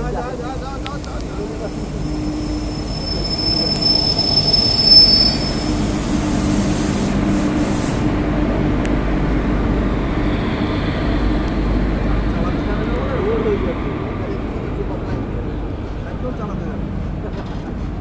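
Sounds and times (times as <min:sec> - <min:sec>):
high wheel squeal: 0:01.4 - 0:06.8.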